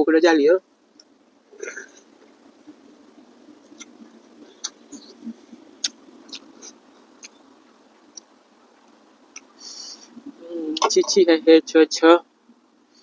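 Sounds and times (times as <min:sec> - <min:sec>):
wet mouth clicks and smacks: 0:05.8 - 0:06.6.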